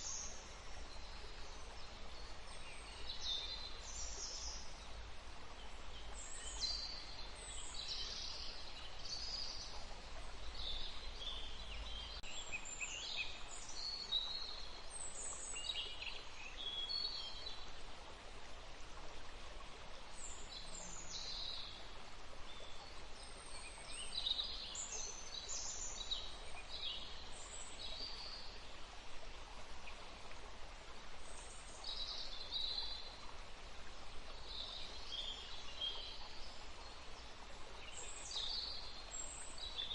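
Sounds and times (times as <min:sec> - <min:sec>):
songbirds singing and chirping: 0:00.0 - 0:17.7
forest stream rushing: 0:00.0 - 0:39.9.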